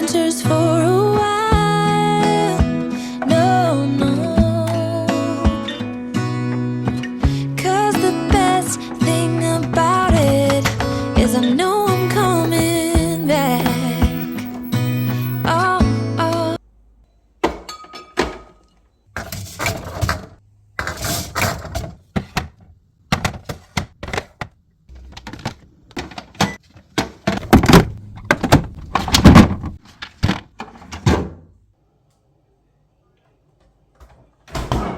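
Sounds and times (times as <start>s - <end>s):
plastic containers knocking and clattering: 19.2s - 31.4s.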